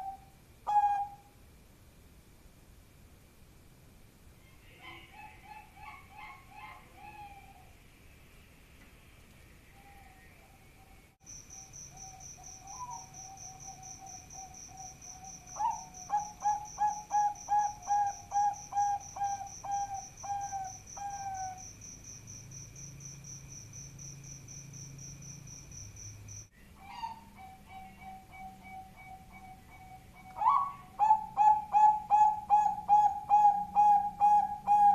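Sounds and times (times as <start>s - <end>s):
dove cooing: 0.0s - 1.3s, 4.6s - 7.7s, 12.0s - 21.6s, 26.8s - 34.9s
high insect-like chirp: 9.4s - 34.9s.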